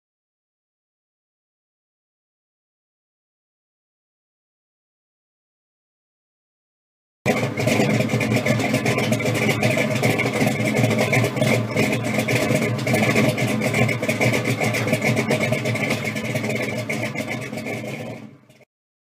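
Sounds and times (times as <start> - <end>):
car engine idling: 7.3 - 18.6
supercharger whine: 7.3 - 18.6.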